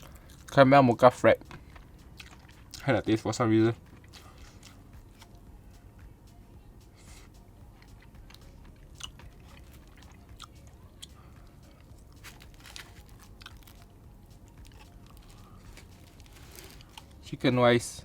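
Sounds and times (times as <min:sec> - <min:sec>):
person chewing crunchy food: 0:00.0 - 0:00.5, 0:01.4 - 0:02.8, 0:03.8 - 0:05.4, 0:07.8 - 0:17.2.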